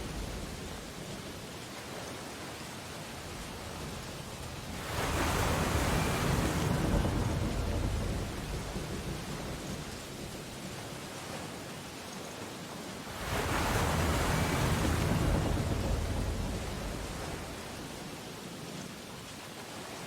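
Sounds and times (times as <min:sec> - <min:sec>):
ocean surf washing: 0:00.0 - 0:20.0
wave breaking: 0:03.2 - 0:10.4, 0:13.1 - 0:18.1.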